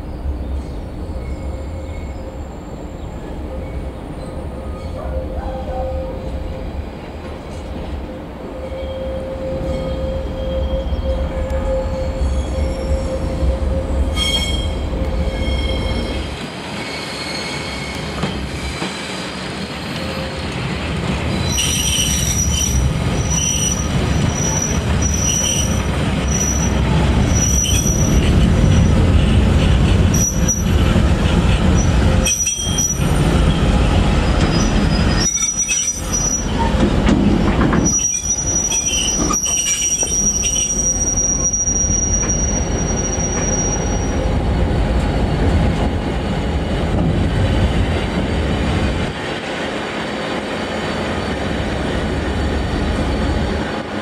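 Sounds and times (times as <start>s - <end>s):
train wheels squealing: 0.0s - 6.2s, 8.6s - 20.6s, 21.3s - 29.0s, 30.1s - 30.8s, 31.7s - 36.9s, 37.7s - 44.4s
train rolling with low rumble: 0.0s - 54.0s.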